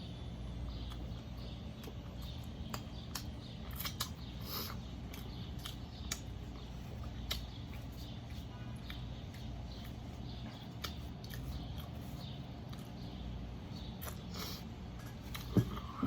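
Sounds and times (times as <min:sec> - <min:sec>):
low background hum: 0:00.0 - 0:16.0
crisp chewing crunches: 0:00.6 - 0:15.6
wet mouth clicks: 0:01.8 - 0:06.3.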